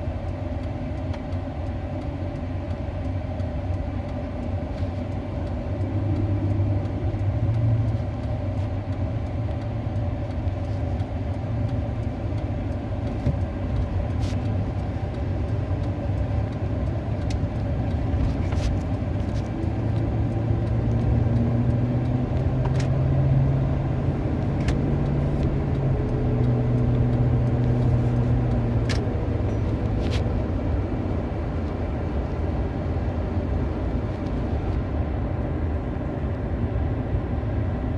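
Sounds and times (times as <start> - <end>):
vehicle engine rumble: 0.0 - 37.9.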